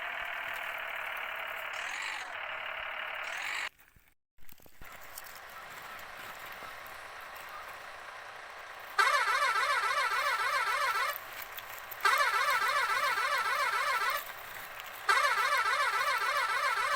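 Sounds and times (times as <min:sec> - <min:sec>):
electronic warbling siren: 0:00.0 - 0:03.7, 0:08.9 - 0:16.9.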